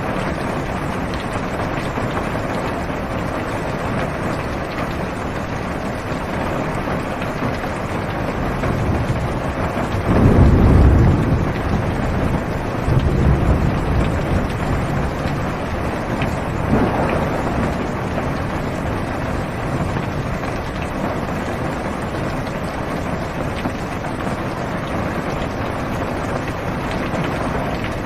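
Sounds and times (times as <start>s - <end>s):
heavy rain on car roof: 0.0s - 28.0s
low thunder rumble: 8.0s - 24.3s.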